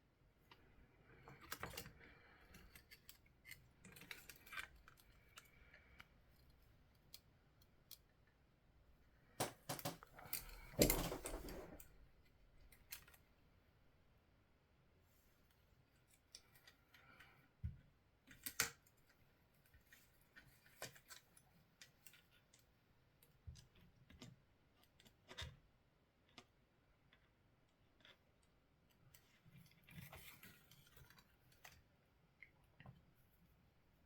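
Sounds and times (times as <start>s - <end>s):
clicks and taps of small tools: 9.4s - 11.0s.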